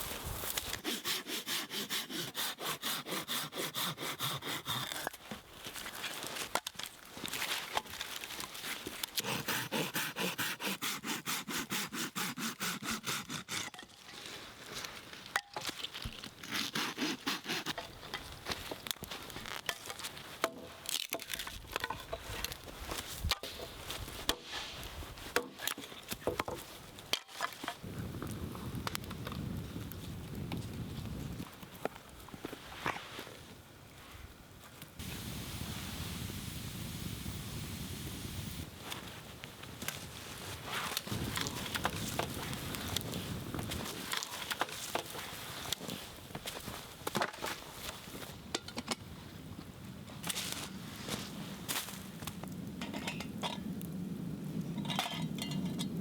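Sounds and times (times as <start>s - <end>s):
hand saw cutting wood: 0.5s - 5.2s, 9.0s - 14.1s, 16.4s - 18.2s.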